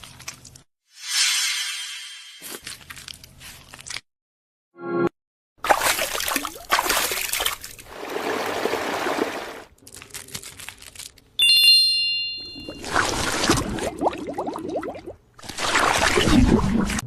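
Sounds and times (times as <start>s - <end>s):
bright chime: 11.4s - 12.8s.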